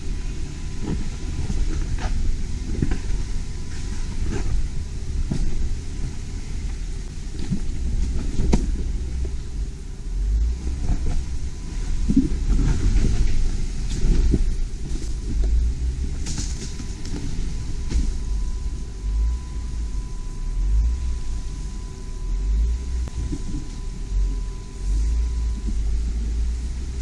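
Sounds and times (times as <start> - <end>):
body and suspension rattles: 0.0 - 19.2
engine and drivetrain rumble: 0.0 - 27.0.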